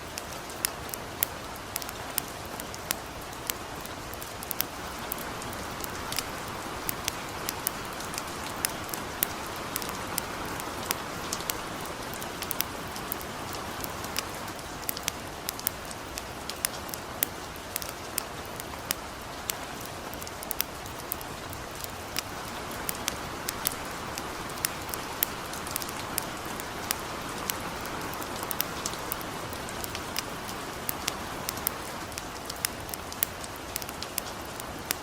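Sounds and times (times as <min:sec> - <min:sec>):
campfire crackling: 0:00.0 - 0:35.0
light rain falling: 0:00.0 - 0:35.0.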